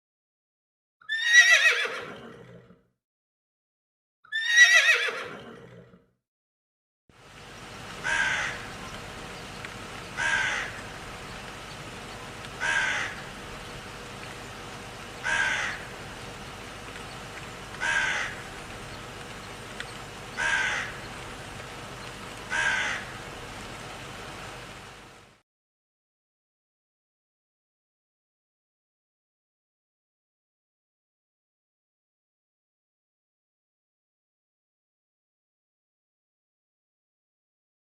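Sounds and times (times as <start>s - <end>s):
background hiss: 7.2s - 25.4s
harsh animal call: 10.1s - 11.1s, 12.6s - 13.4s, 15.2s - 16.0s, 20.3s - 21.1s, 22.5s - 23.2s.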